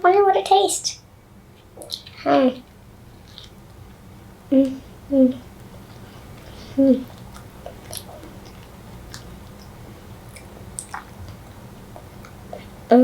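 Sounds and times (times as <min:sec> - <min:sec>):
child chewing: 0:01.5 - 0:13.0
person humming: 0:04.5 - 0:05.5, 0:06.6 - 0:07.1
mouth clicks: 0:06.8 - 0:11.4.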